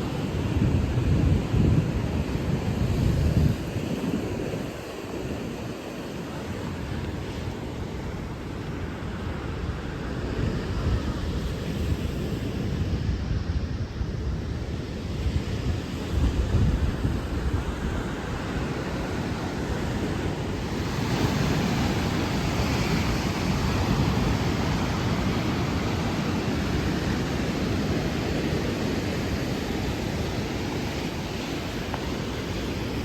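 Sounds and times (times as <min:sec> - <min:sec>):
wind buffeting microphone: 0:00.0 - 0:33.0
surf breaking on beach: 0:16.0 - 0:33.0.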